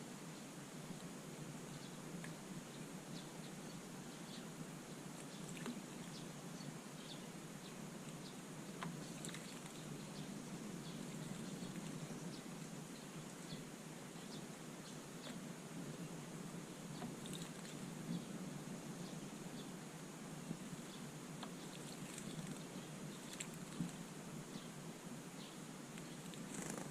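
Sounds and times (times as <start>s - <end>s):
low background hum: 0.0s - 26.9s
small birds chirping: 0.0s - 26.9s.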